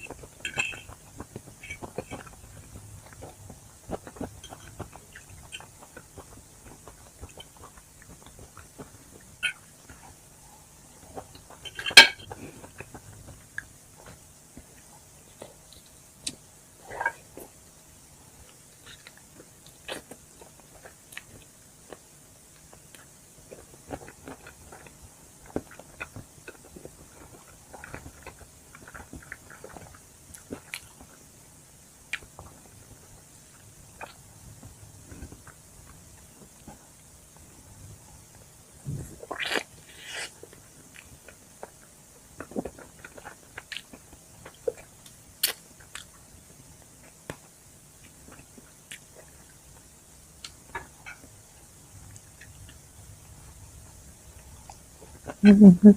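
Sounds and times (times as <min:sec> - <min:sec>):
chewing with wet smacks: 0:00.0 - 0:10.1.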